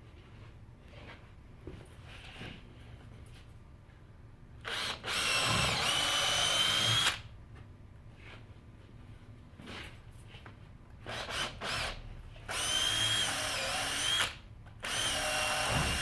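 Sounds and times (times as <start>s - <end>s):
power drill whining: 4.7s - 7.2s, 11.1s - 16.0s.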